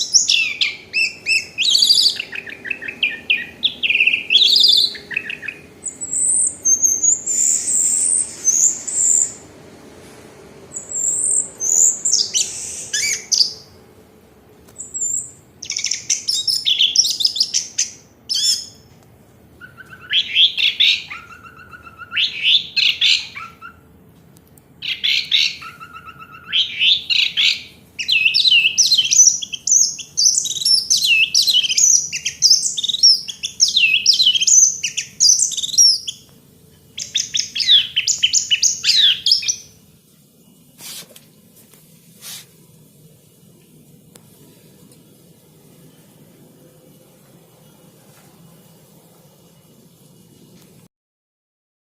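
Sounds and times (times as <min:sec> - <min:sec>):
thrush singing whistled phrases: 0:00.0 - 0:09.4, 0:10.7 - 0:13.7, 0:19.6 - 0:23.8, 0:24.8 - 0:36.2, 0:37.0 - 0:39.8.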